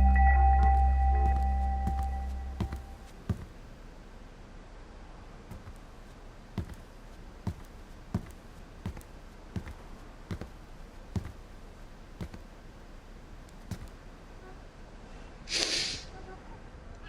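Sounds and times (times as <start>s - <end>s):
footsteps on a hard floor: 0.0s - 3.6s, 5.5s - 11.5s, 12.2s - 12.5s, 13.6s - 14.0s.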